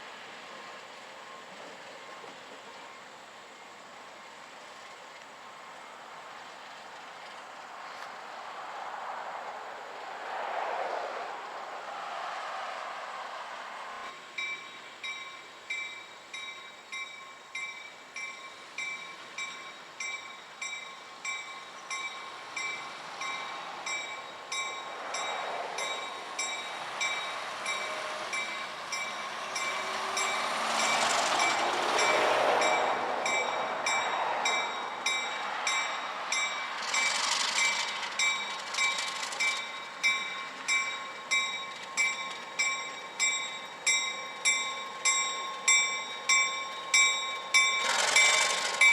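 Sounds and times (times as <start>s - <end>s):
train rolling past: 0.0s - 48.9s
railroad crossing bell ringing: 14.0s - 48.9s.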